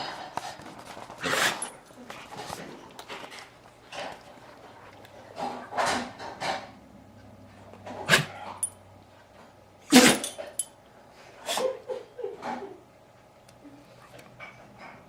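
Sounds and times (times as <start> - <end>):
dog sneezing: 1.2 - 1.7, 8.1 - 8.4, 9.9 - 10.4.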